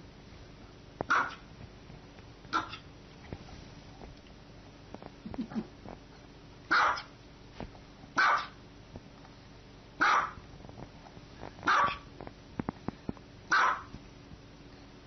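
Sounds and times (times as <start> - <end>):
small dog barking: 1.1 - 1.5, 2.5 - 2.9, 6.7 - 7.1, 8.2 - 8.6, 10.0 - 10.4, 11.6 - 12.1, 13.5 - 14.0.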